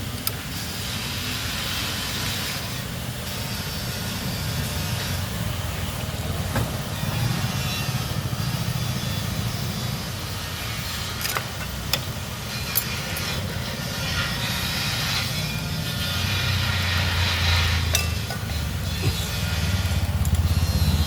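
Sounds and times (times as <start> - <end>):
low mechanical rumble: 1.3 - 21.0
sharp metal clinks: 17.9 - 19.3.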